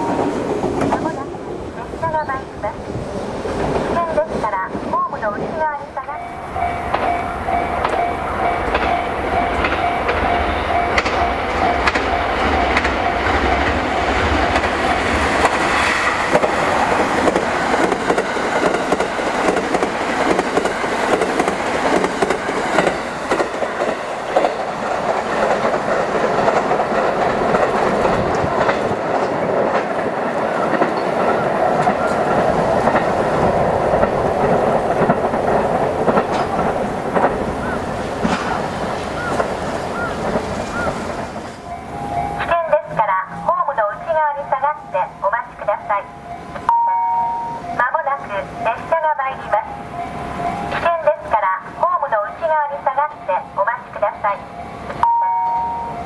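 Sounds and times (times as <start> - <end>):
train running past: 0.0 - 56.0
wheels clicking over rail joints: 6.7 - 15.6, 16.3 - 41.7.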